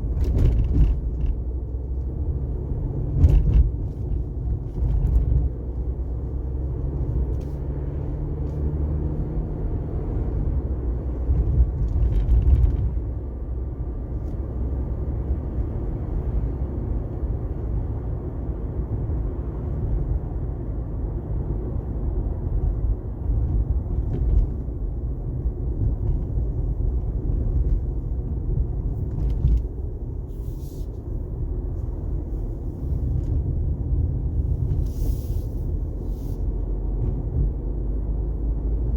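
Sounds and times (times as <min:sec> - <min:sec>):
road and engine rumble: 0:00.0 - 0:38.9
brief hisses: 0:34.8 - 0:36.4.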